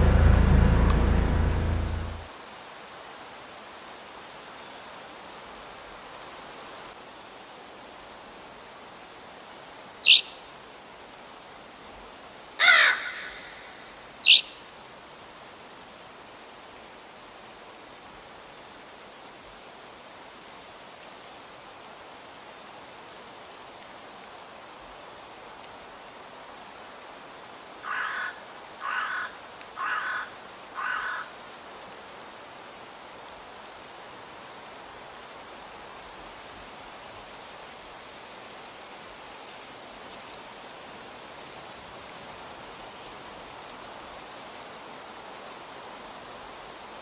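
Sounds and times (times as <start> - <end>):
steady outdoor hiss: 0.0 - 47.0
crow cawing: 12.6 - 13.8, 27.8 - 31.3.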